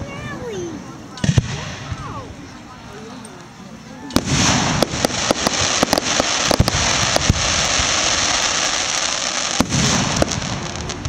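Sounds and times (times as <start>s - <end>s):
continuous loud hiss: 0.0s - 11.0s
fireworks bangs and pops: 1.2s - 2.1s, 4.1s - 11.0s.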